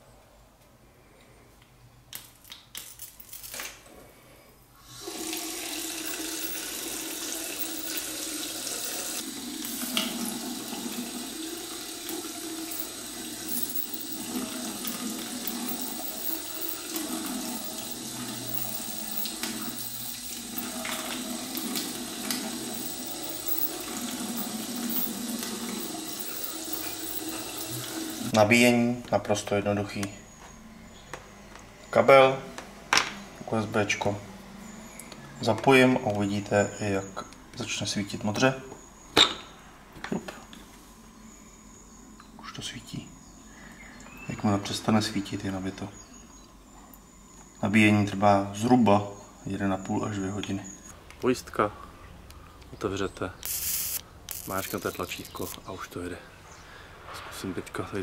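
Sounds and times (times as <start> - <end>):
water running from a tap: 4.9 - 28.3.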